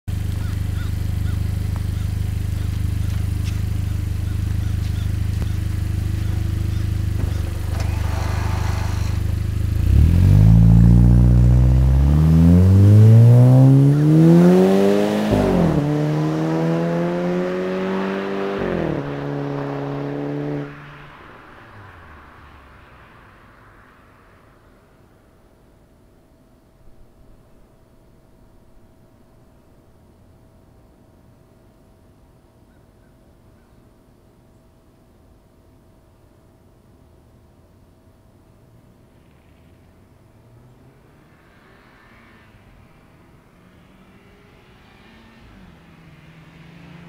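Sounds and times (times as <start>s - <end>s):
car engine idling and accelerating: 0.1s - 32.7s, 36.7s - 47.0s.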